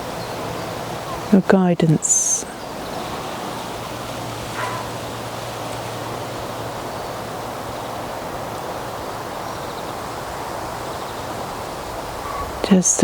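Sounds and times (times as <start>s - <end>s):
wind rushing through trees: 0.0s - 13.0s.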